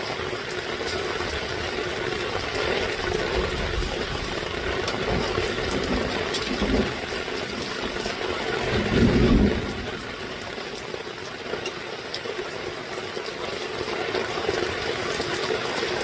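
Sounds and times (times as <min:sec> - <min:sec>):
heavy rain falling: 0:00.0 - 0:16.0
low thunder rumbles: 0:01.6 - 0:11.3.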